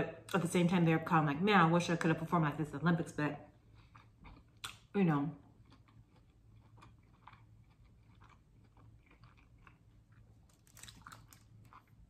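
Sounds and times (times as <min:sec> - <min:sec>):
person chewing crunchy food: 0:03.5 - 0:12.0.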